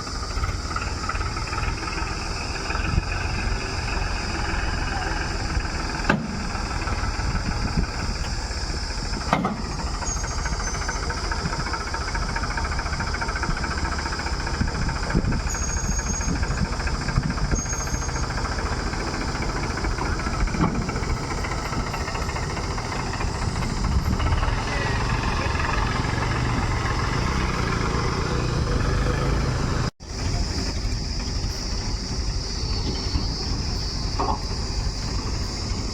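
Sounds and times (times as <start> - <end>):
diesel engine running: 0.0 - 35.9
sharp clunks: 6.0 - 6.5, 9.2 - 9.8.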